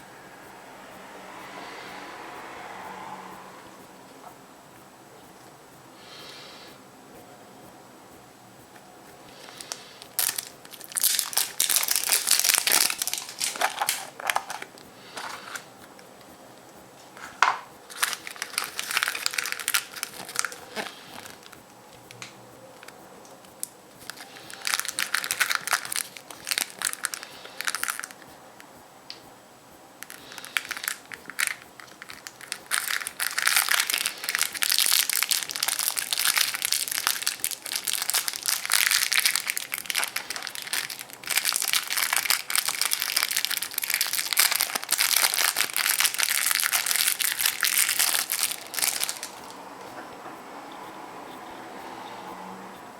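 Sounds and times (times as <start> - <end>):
foil wrapper crinkling: 9.4 - 16.1, 17.4 - 23.0, 23.6 - 28.2, 30.0 - 49.6.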